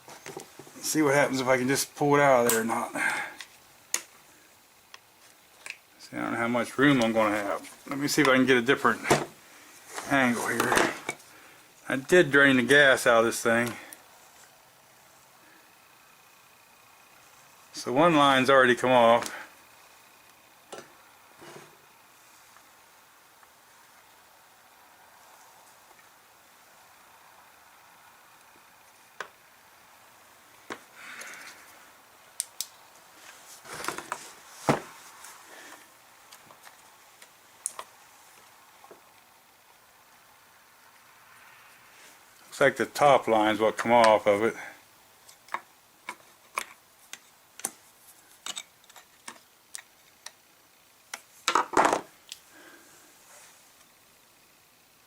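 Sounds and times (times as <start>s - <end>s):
scraping rustle: 8.8s - 11.1s, 33.1s - 35.7s.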